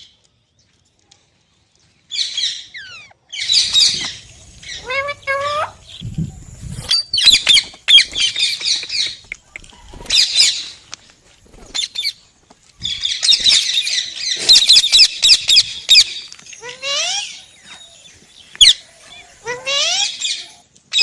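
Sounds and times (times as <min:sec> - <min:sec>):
parrot chattering and squawking: 0:02.4 - 0:06.0, 0:13.1 - 0:17.4, 0:18.6 - 0:21.0.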